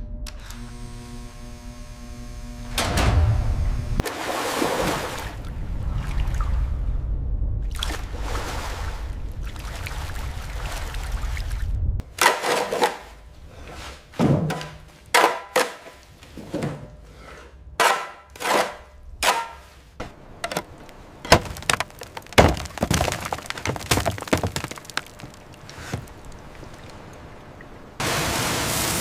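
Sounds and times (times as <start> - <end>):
knocks and clatters: 17.8 - 26.1.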